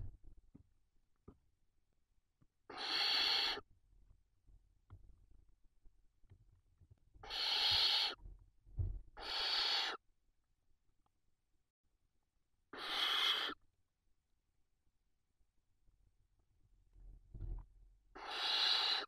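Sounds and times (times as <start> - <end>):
barn owl hissing calls: 2.7 - 3.6, 7.2 - 8.2, 9.2 - 10.0, 12.7 - 13.6, 18.2 - 19.0.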